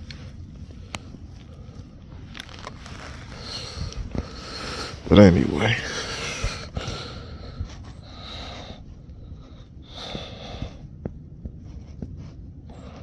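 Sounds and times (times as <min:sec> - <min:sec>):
person breathing and sniffing: 0:02.6 - 0:11.0.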